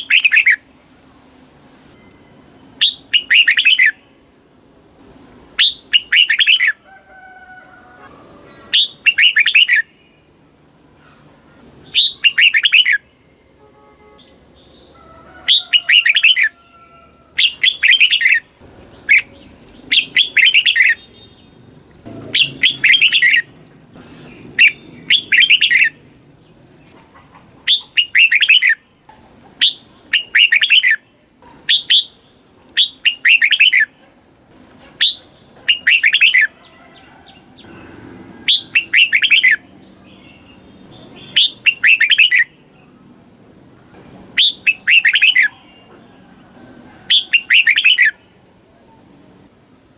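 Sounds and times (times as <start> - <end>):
bulbul singing: 0.0 - 0.7, 1.9 - 4.3, 5.4 - 6.9, 8.4 - 16.6, 17.3 - 27.0, 27.6 - 29.0, 29.6 - 34.0, 35.0 - 36.6, 38.4 - 43.0, 43.6 - 46.1, 47.1 - 48.4.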